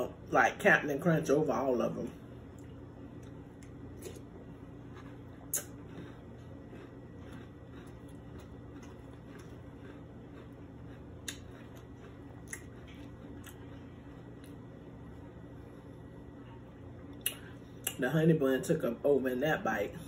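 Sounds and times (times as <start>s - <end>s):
low hum: 0.0s - 20.0s
chewing crunchy cereal: 1.2s - 16.1s.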